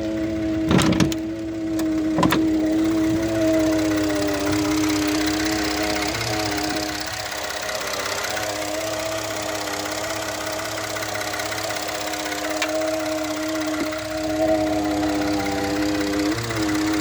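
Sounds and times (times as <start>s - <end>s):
car engine idling with drone: 0.0s - 17.0s.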